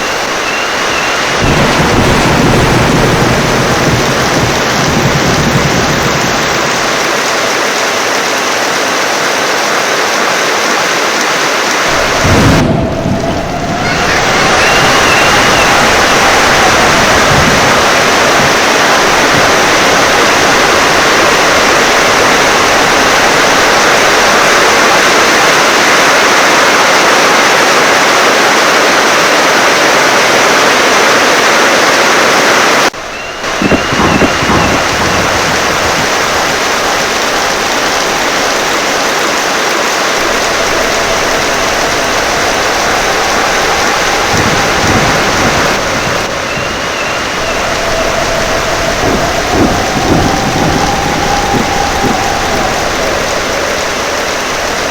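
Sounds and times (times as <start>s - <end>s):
low rumble of thunder: 0.0s - 7.8s, 11.9s - 25.0s, 33.0s - 39.4s, 40.0s - 54.9s
heavy rain falling: 0.0s - 54.9s
wind: 0.0s - 54.9s.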